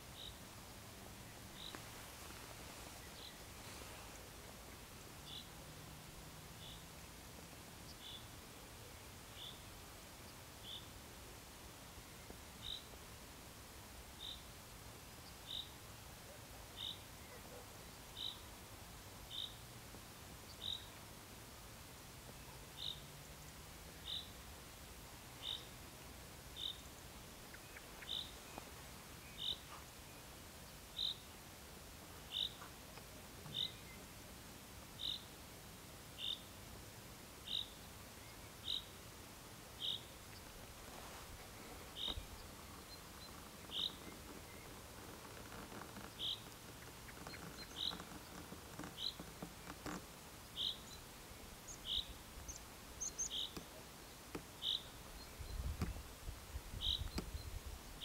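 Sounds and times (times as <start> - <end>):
faint outdoor background noise: 0.0 - 58.0
bird chirping: 1.2 - 1.9, 5.2 - 5.6, 20.5 - 21.0, 25.4 - 25.8, 26.6 - 31.3, 32.2 - 32.8, 33.4 - 34.0, 35.0 - 35.3, 37.4 - 39.0, 39.8 - 40.6, 41.4 - 56.1, 56.7 - 58.0.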